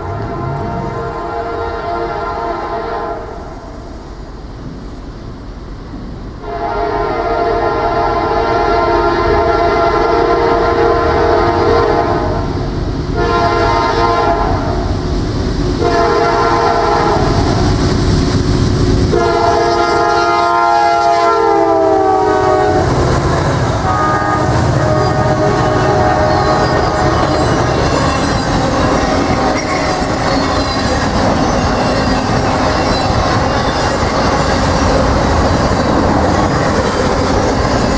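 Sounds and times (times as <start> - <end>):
locomotive air horn blasts: 0.0 - 3.4, 6.4 - 12.4, 13.2 - 14.8, 15.8 - 17.4, 19.1 - 23.0, 23.8 - 27.6
train rumbling on rails: 0.0 - 37.9.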